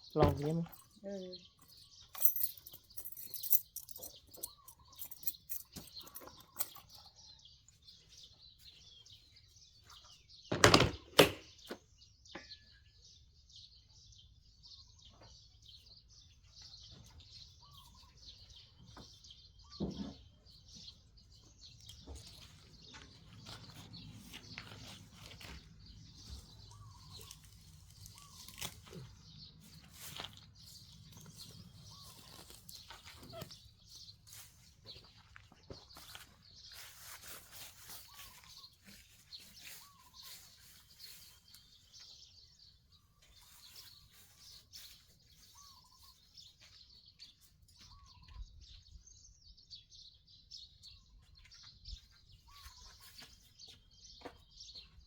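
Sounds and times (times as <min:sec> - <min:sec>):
birds chirping: 0:00.0 - 0:55.0
loud knocks or handling: 0:10.5 - 0:11.5.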